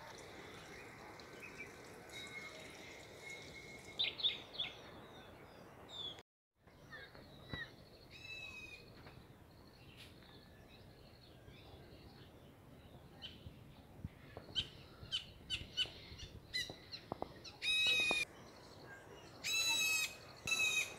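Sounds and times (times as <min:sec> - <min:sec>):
outdoor background hiss: 0:00.0 - 0:20.9
small birds chirping: 0:00.0 - 0:20.9
bird trill: 0:00.6 - 0:05.2, 0:14.4 - 0:18.3, 0:19.4 - 0:20.9.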